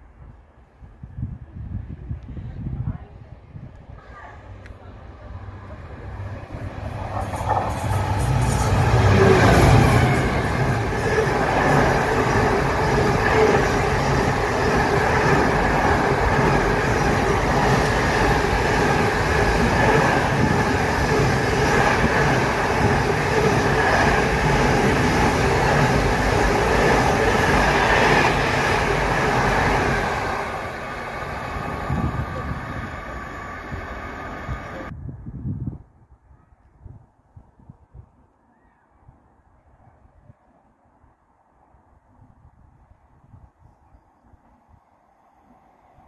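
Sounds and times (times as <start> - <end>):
freight train passing: 3.8 - 35.0.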